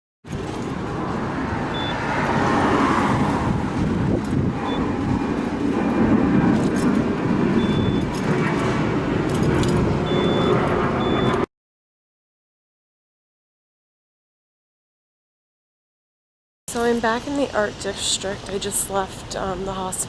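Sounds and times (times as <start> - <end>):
car road rumble: 0.3 - 11.4.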